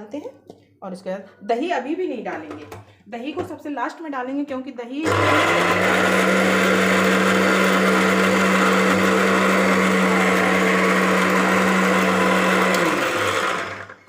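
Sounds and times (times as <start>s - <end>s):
mixer grinder running: 5.0s - 14.0s.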